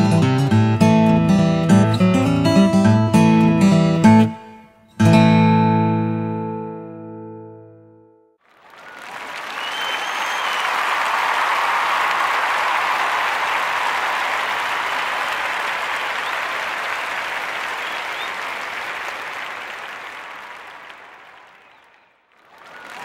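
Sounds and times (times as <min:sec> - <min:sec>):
crowd applauding: 0:08.4 - 0:23.0.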